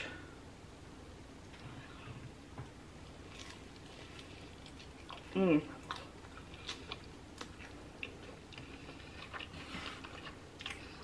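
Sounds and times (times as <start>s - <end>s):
chewing with mouth clicks and smacks: 3.3s - 11.0s.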